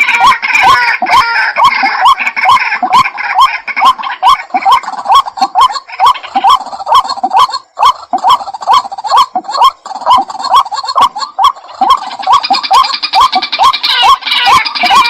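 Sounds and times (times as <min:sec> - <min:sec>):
bird calling harsh rising notes: 0:00.0 - 0:15.0.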